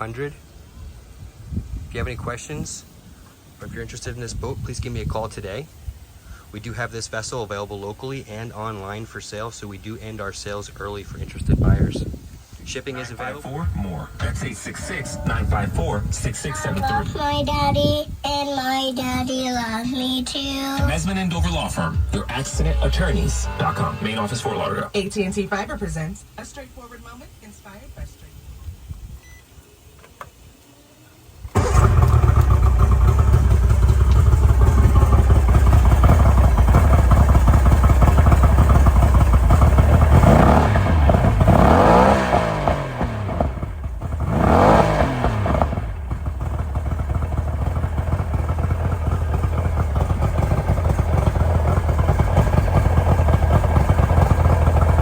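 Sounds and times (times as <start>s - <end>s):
outboard engine running: 31.5s - 55.0s.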